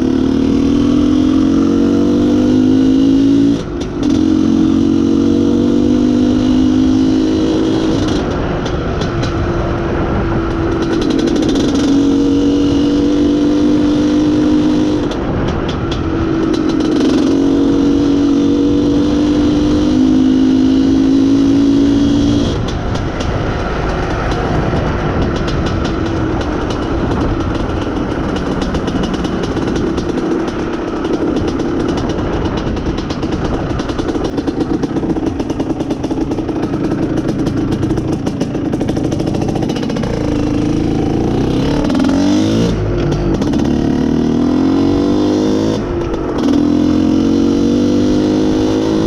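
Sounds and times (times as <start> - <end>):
two-stroke motorcycle engine running: 0.0 - 49.0
wind and road noise: 0.0 - 49.0.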